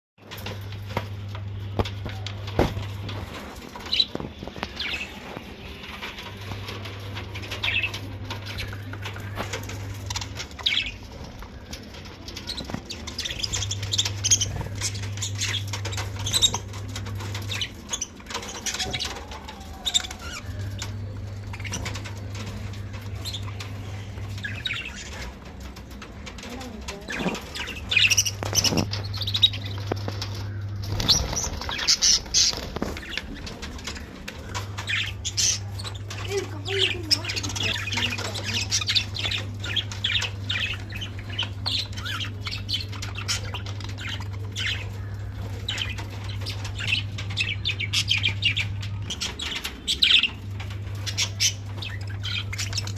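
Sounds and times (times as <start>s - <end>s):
low hum: 0.2s - 52.9s
budgerigars fluttering wings: 26.8s - 52.9s
budgerigars chirping: 27.1s - 33.6s.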